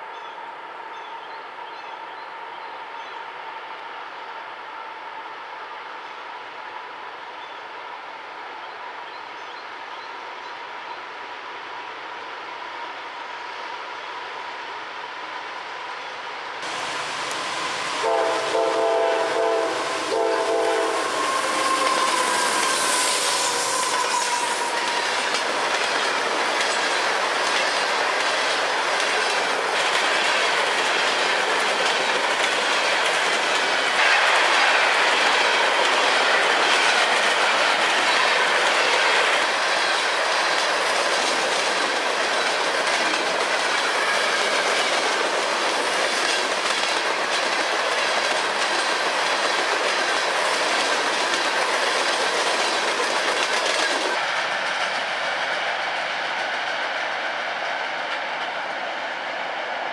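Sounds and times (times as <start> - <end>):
locomotive air horn chord: 16.7 - 25.0.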